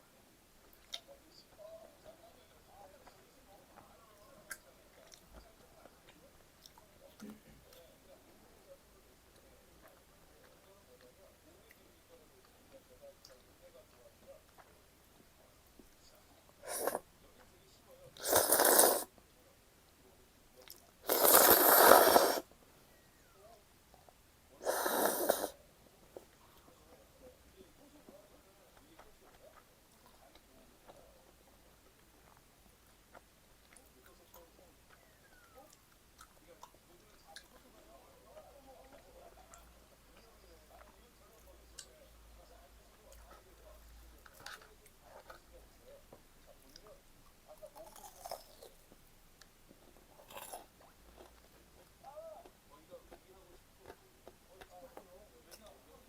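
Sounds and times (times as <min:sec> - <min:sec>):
soft chewing with mouth clicks: 0:00.6 - 0:56.0
noodle slurping: 0:18.2 - 0:19.1, 0:21.0 - 0:22.5, 0:24.6 - 0:25.5.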